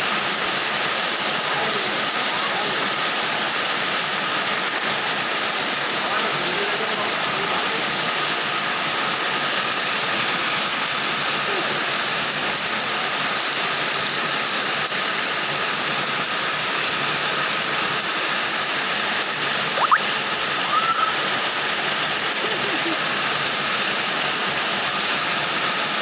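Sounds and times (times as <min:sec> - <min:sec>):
floodwater rushing: 0:00.0 - 0:26.0
short rising tone: 0:19.8 - 0:21.1.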